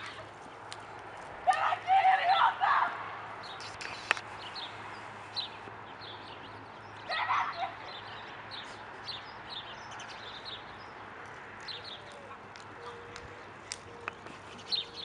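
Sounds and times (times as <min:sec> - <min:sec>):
small birds chirping: 0:03.4 - 0:15.0.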